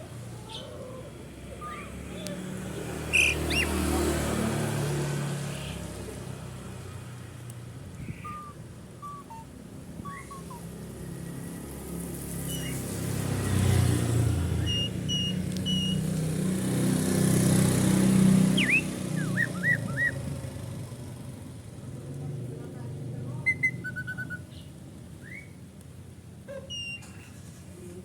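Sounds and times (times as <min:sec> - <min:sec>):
vehicle engine rumble: 0:00.0 - 0:28.0
bird whistling short notes: 0:08.0 - 0:10.7, 0:12.5 - 0:12.8, 0:14.6 - 0:16.0, 0:18.6 - 0:20.2, 0:26.7 - 0:27.2.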